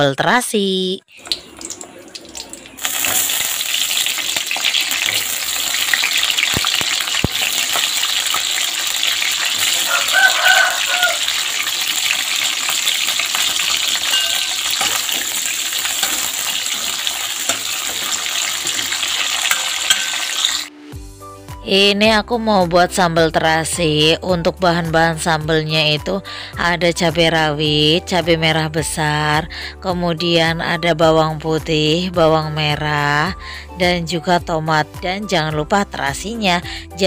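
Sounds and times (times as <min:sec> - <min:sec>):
food sizzling in hot oil: 0:01.1 - 0:20.8.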